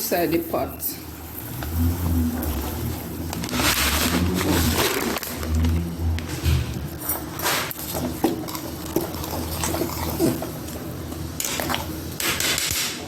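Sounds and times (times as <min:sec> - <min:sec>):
liquid boiling: 0:00.1 - 0:13.0.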